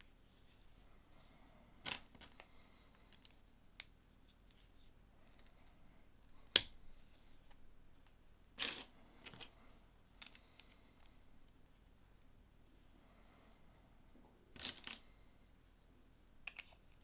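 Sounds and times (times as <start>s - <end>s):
plastic toy bricks snapping together: 6.6s - 6.8s.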